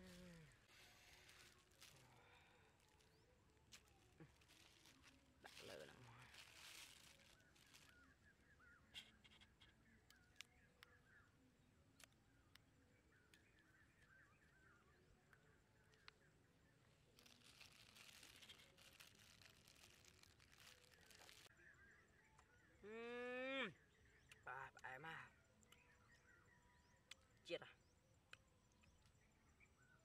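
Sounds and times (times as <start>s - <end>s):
rustling: 0.0s - 8.0s, 17.1s - 21.5s
small birds chirping: 0.0s - 30.0s.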